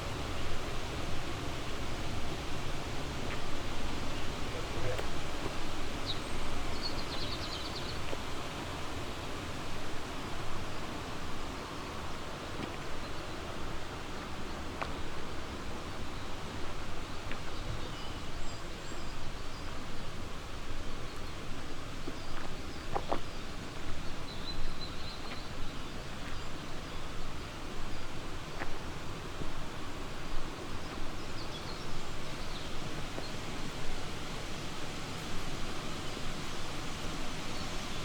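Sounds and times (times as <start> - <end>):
river rushing: 28.2 - 38.0.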